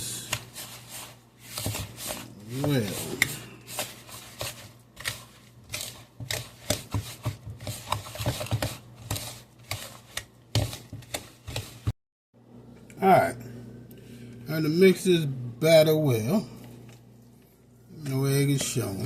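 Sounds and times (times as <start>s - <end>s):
utensil scraping against bowl: 0.2s - 11.9s.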